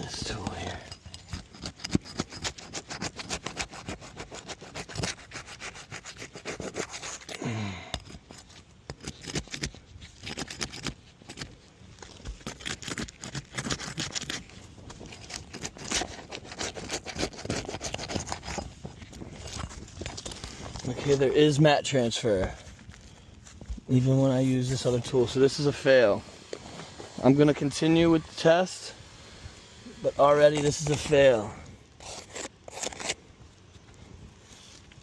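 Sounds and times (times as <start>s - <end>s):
hand tool scraping and tearing shingles: 0.0s - 21.4s, 30.0s - 33.2s.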